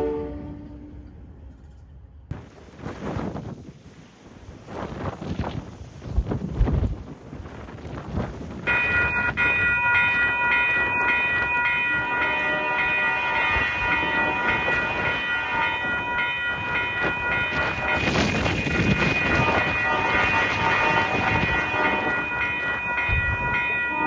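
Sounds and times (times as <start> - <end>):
railroad bell ringing: 8.6 - 24.0.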